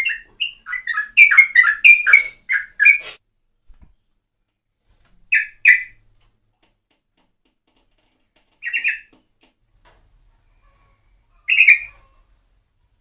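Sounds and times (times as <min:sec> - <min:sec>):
bulbul calling: 0:00.0 - 0:03.1, 0:05.3 - 0:06.0, 0:08.6 - 0:09.1, 0:11.5 - 0:12.1.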